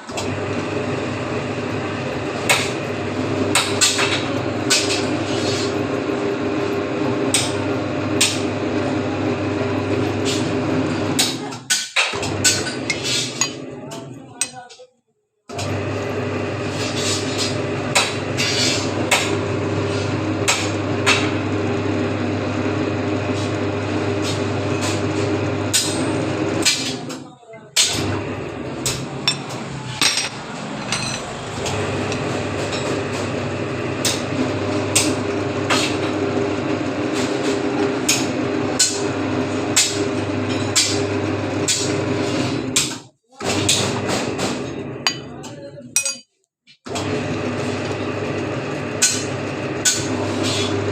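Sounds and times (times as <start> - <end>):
bending machine motor hum: 0.0 - 11.4, 12.2 - 14.5, 27.9 - 42.8.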